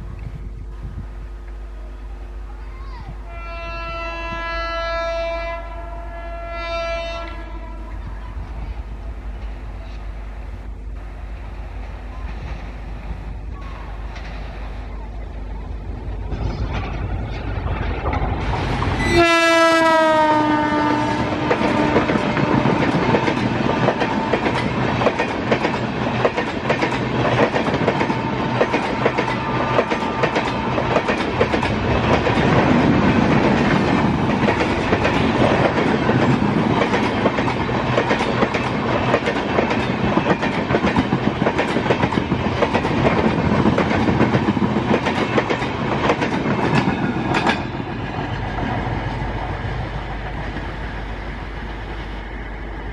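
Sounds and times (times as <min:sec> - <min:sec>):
train passing at speed: 0:00.0 - 0:52.9
train horn: 0:03.3 - 0:08.4, 0:19.0 - 0:24.7, 0:28.0 - 0:30.8
clickety-clack of train wheels: 0:11.7 - 0:52.9.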